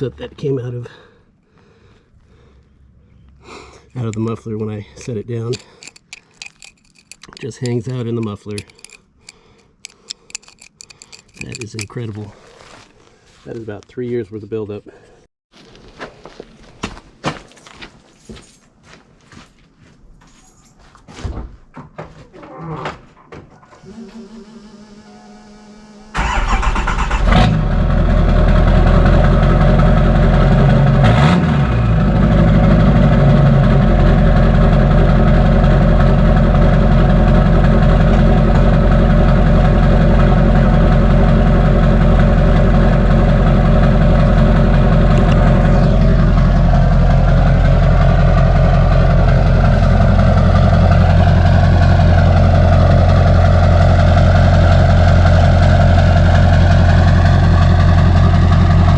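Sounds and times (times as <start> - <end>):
diesel engine starting and idling: 23.7 - 58.9.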